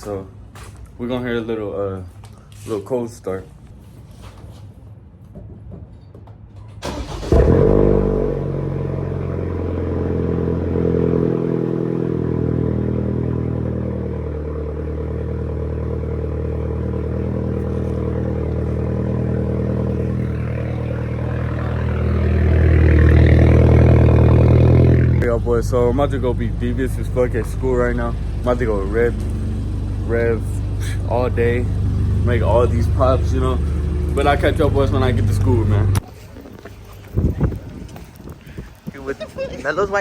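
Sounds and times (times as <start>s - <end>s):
loud car engine idling: 6.8s - 36.0s.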